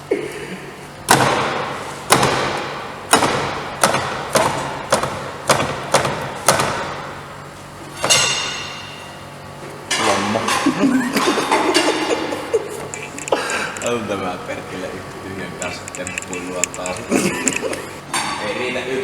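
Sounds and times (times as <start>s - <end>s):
heavy knocks on car chassis: 1.1s - 7.2s.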